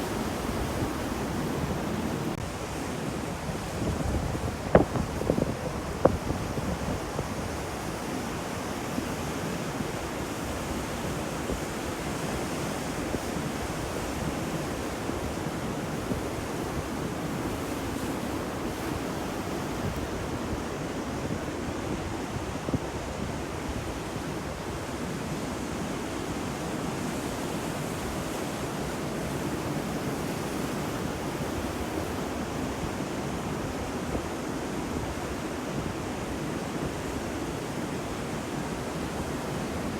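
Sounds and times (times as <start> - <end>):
ocean waves washing: 0.0 - 22.7.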